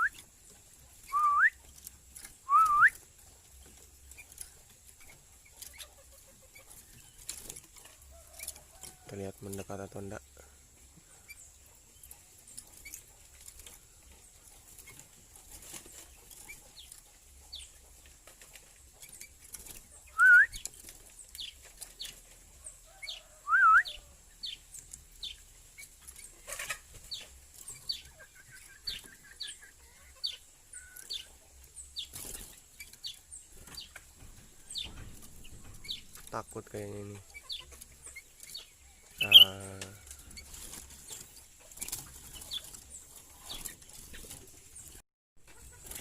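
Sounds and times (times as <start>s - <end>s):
small birds chirping: 0.0s - 46.0s
loud whistled notes: 1.1s - 1.6s, 2.5s - 2.9s, 20.2s - 20.6s.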